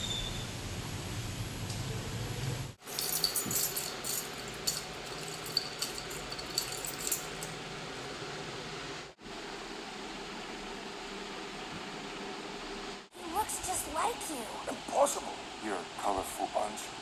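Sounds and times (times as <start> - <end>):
light clinks and taps: 2.8 - 7.6.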